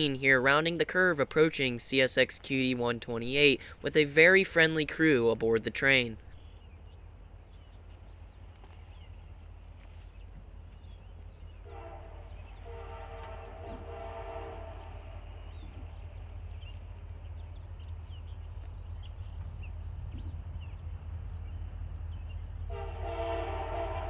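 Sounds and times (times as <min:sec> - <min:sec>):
low train rumble: 0:00.0 - 0:24.0
diesel locomotive horn blast: 0:11.6 - 0:16.4, 0:22.6 - 0:24.0.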